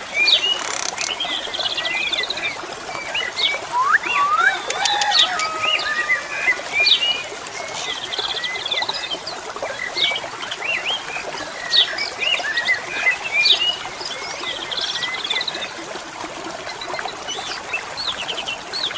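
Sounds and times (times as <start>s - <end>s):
trickle of flowing water: 0.0s - 18.9s
starling whistles and chirps: 3.7s - 6.1s.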